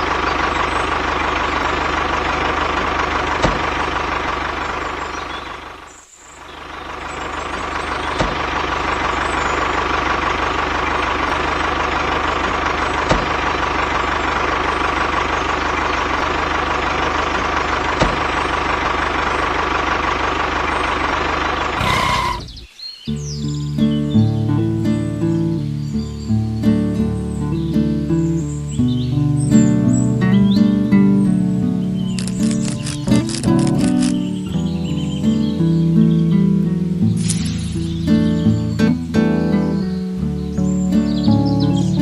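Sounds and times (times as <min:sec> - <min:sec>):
small motor droning and whining: 0:20.8 - 0:22.7
light clicks: 0:32.2 - 0:34.3.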